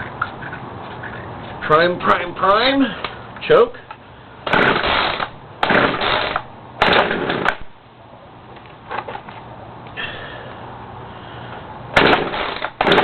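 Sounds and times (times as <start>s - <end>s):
chainsaw starter cord pulls: 4.5s - 7.6s.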